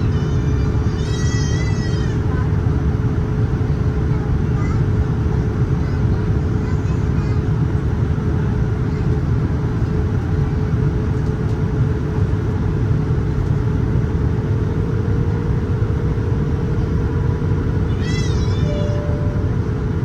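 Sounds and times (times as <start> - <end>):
low rumble of engines and airflow: 0.0 - 20.0
steady hum: 18.5 - 20.0.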